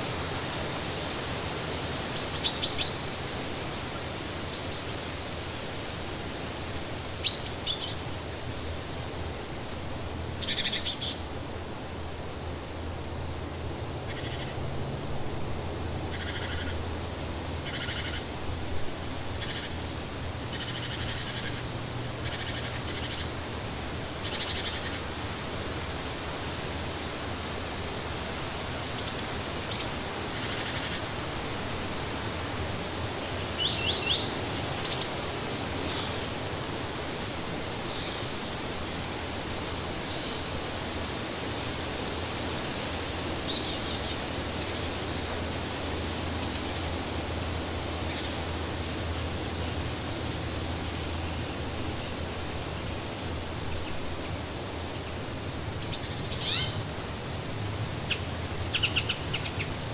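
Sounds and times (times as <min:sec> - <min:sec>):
steady background hiss: 0:00.0 - 0:59.9
birds calling and chirping: 0:54.8 - 0:59.9.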